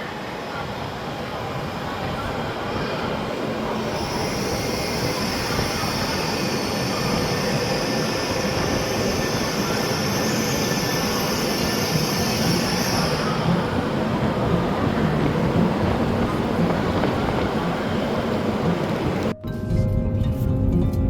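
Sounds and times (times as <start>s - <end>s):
train rumble: 0.0s - 19.3s
high-pitched hiss: 4.0s - 13.7s.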